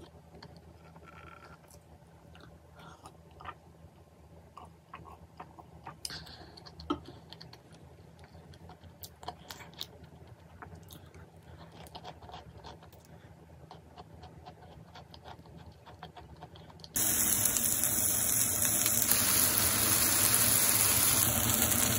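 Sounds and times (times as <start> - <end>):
person chewing with mouth clicks: 0.0 - 3.7, 4.5 - 17.0.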